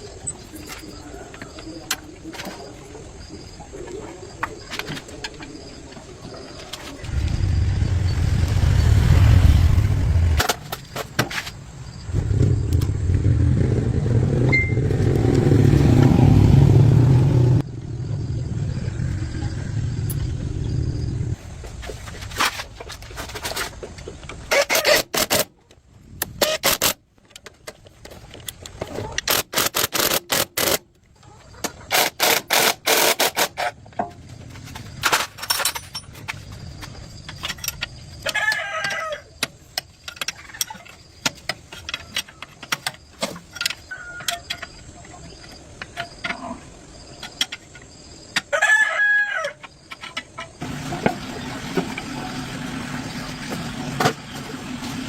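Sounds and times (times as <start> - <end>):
rooster crowing: 38.2 - 39.3, 48.5 - 49.6.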